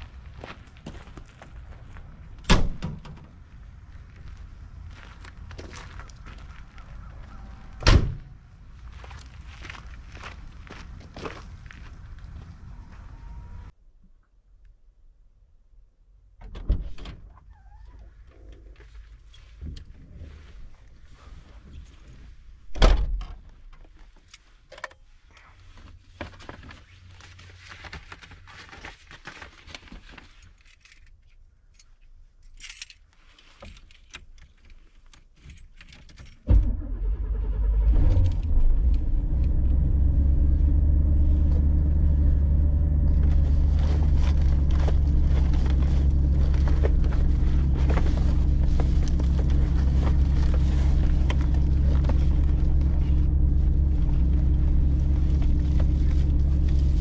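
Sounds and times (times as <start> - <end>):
keys rattling and clicking: 30.4 - 36.4
van engine starting and idling: 36.5 - 57.0.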